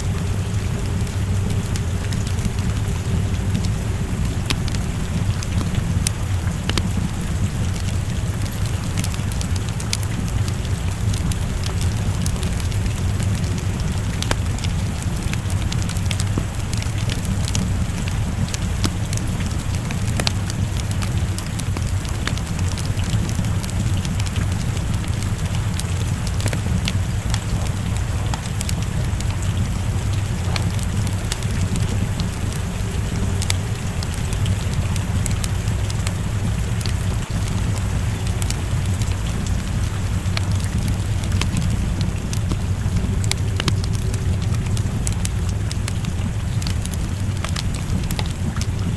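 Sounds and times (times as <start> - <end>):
deep rumble: 0.0 - 48.9
steady rain: 0.0 - 48.9
wood fire crackling: 0.0 - 48.9.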